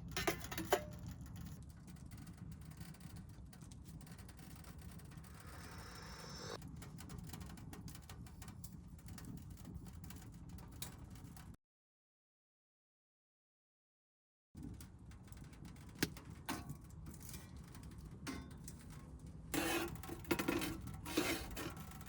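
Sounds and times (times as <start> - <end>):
wood fire crackling in stove: 0.0 - 11.6, 14.6 - 22.0.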